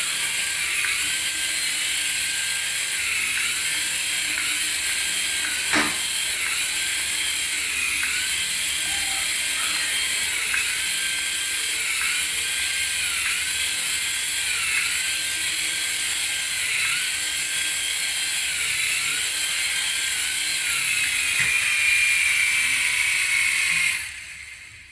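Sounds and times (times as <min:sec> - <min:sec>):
toy motor and gears whirring: 0:00.0 - 0:24.9.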